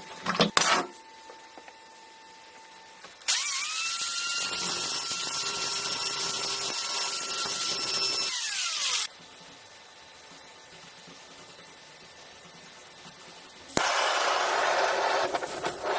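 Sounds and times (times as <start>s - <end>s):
power tool motor whining: 3.3s - 9.1s.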